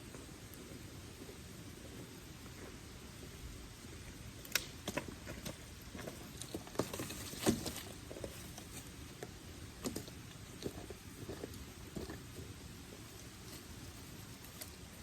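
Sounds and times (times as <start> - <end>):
campfire crackling and popping: 3.8 - 6.5.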